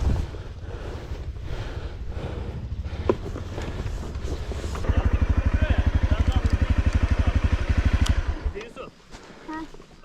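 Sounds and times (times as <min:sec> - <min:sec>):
wind buffeting microphone: 0:00.0 - 0:04.8.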